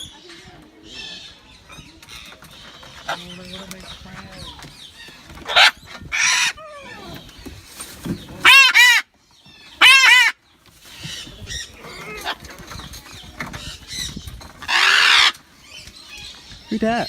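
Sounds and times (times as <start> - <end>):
parrots squawking: 3.0 - 7.3, 8.3 - 12.8, 13.4 - 16.8.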